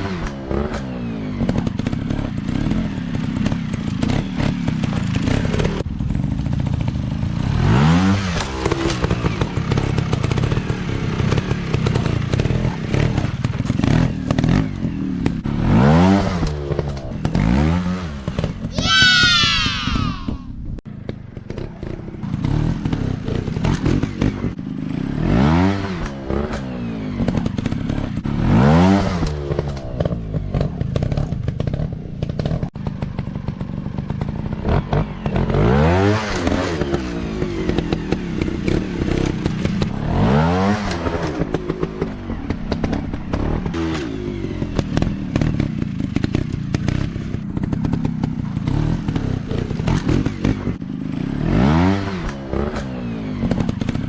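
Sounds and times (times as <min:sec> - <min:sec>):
dirt bike engines revving: 0:12.0 - 0:20.5.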